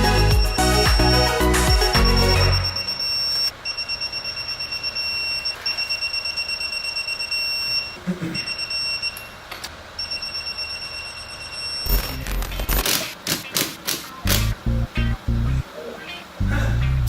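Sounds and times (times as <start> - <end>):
pulsing high-pitched electronic tone: 11.8 - 12.8.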